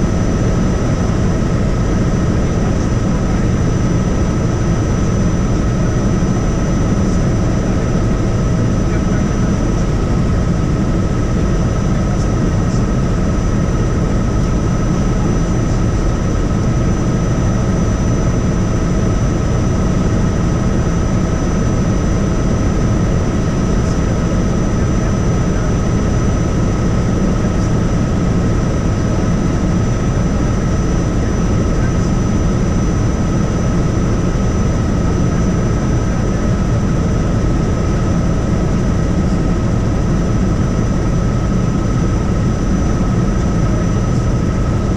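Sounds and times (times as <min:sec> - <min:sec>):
helicopter rotor and engine rumble: 0:00.0 - 0:44.9.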